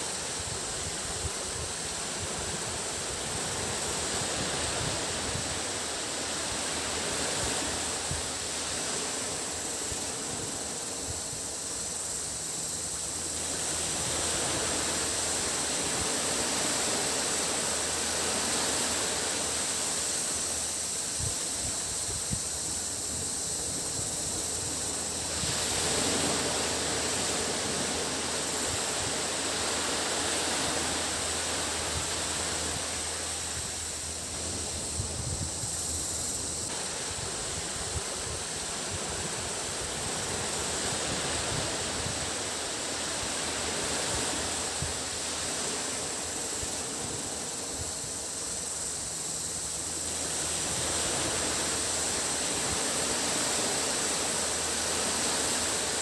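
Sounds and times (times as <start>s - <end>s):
cicadas droning: 0.0s - 56.0s
sea waves washing on beach: 0.0s - 56.0s.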